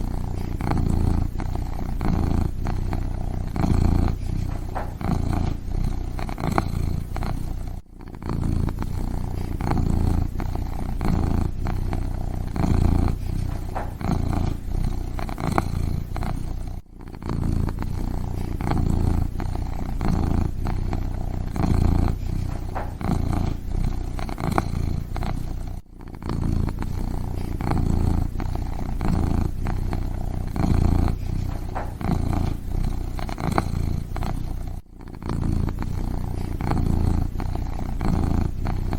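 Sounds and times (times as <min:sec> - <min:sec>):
kitten purring: 0:00.0 - 0:38.9.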